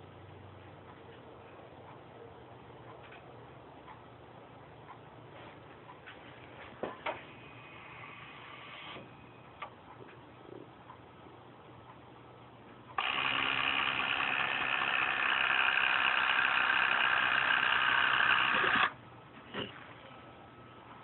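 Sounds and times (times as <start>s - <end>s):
electric actuator motor running: 13.0s - 19.0s.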